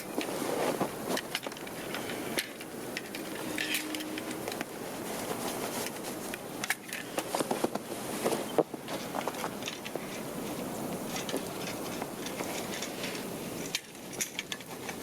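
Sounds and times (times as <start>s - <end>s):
footsteps crunching in snow: 0.0s - 1.3s, 4.7s - 6.3s.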